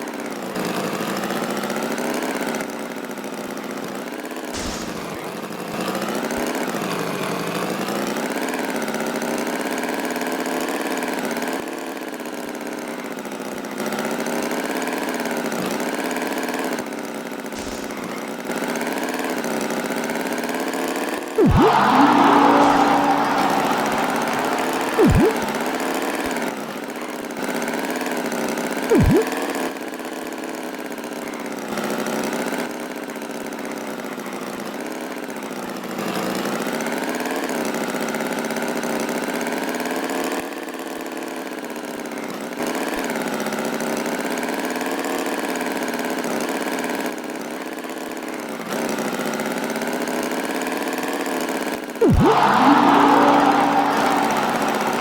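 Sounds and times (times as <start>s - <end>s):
falling swoops: 21.4s - 26.3s, 28.9s - 29.3s, 52.0s - 55.0s.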